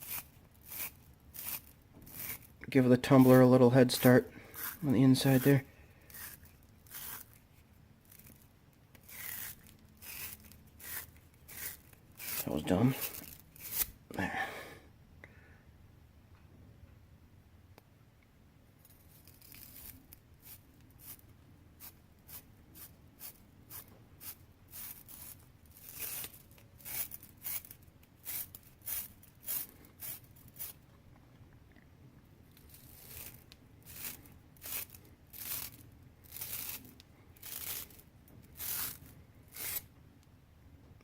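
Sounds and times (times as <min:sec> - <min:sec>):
brush scrubbing metal: 0:00.0 - 0:07.4, 0:09.1 - 0:13.9.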